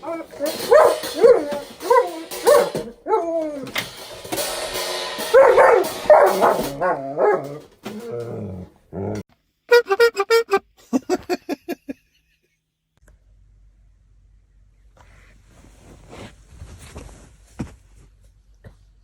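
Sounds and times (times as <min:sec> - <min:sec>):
dog barking and yelping: 0:00.0 - 0:04.0, 0:05.2 - 0:09.2
music playing: 0:09.7 - 0:10.6.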